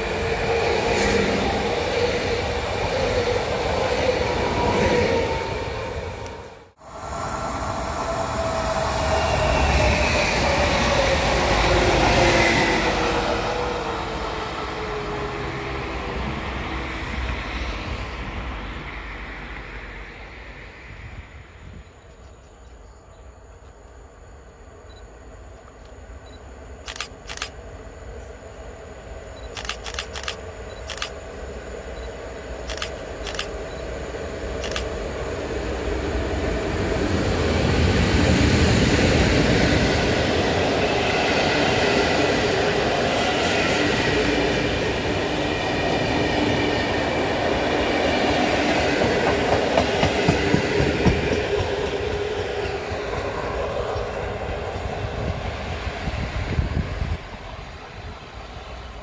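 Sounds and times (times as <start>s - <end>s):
passenger train passing: 0.0s - 59.0s
sharp clicks from rails: 29.5s - 31.2s, 32.6s - 33.7s, 49.0s - 53.3s.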